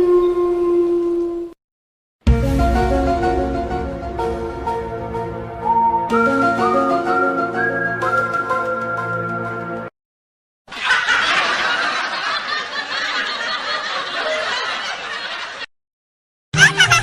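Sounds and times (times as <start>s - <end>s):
crowd laughing: 10.7s - 15.7s, 16.6s - 17.0s.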